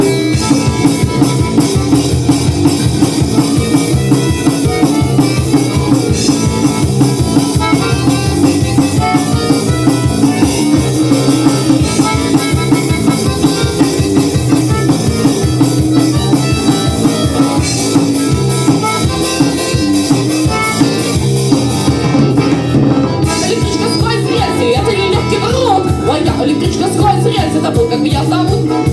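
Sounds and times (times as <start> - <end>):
drum kit beat: 0.0 - 28.9
instrumental band music: 0.0 - 28.9.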